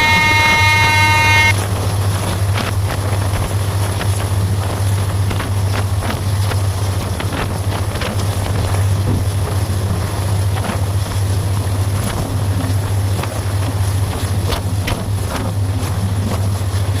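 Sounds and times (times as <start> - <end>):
train running on track: 0.0 - 1.5.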